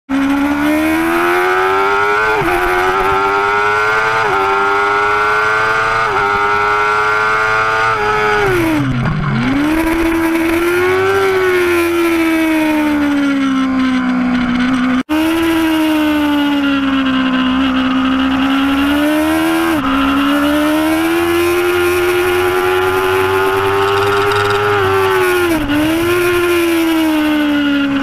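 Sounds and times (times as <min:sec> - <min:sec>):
motorcycle engine revving: 0:00.1 - 0:28.0.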